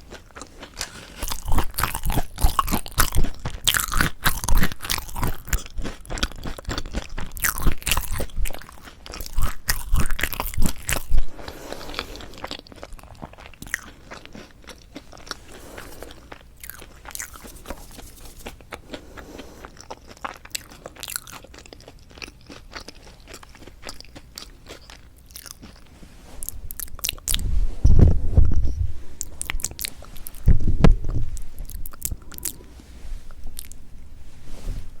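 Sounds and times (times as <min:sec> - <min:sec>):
crunching crisp bread: 0:00.0 - 0:27.4.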